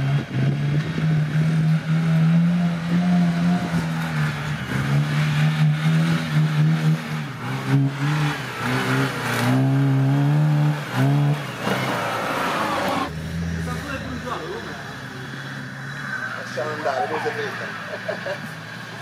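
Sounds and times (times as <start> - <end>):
engine revving: 0.0 - 19.0.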